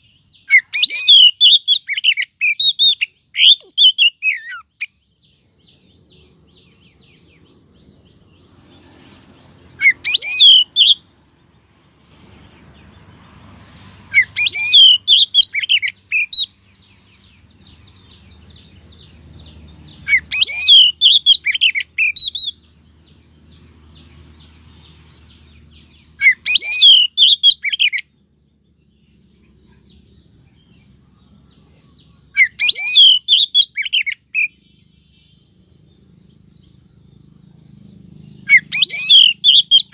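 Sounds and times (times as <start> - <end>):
bird chirps and whistles: 0.0 - 5.4, 9.8 - 11.0, 14.1 - 16.5, 20.0 - 22.7, 25.5 - 28.0, 32.4 - 34.6, 38.5 - 39.9.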